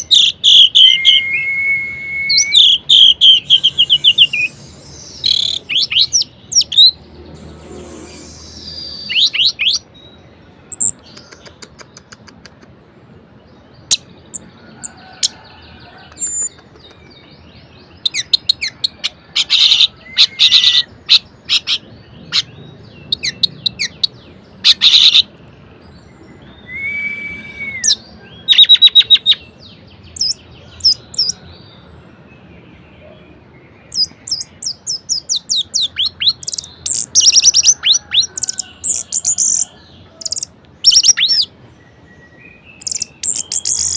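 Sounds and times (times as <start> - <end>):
bird singing trills: 0.0 - 12.2, 33.7 - 43.9.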